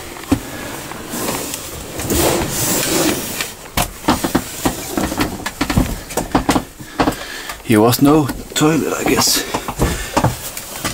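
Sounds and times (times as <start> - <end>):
rustling hiss: 0.0 - 7.6
knocks and clicks of fittings: 3.8 - 10.9.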